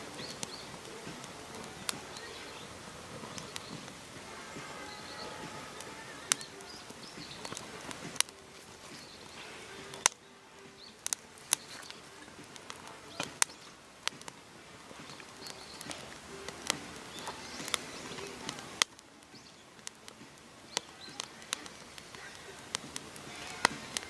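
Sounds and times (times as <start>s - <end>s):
faint outdoor background: 0.0s - 24.0s
sharp clicks or snaps: 3.3s - 4.1s, 5.1s - 10.2s, 10.8s - 24.0s.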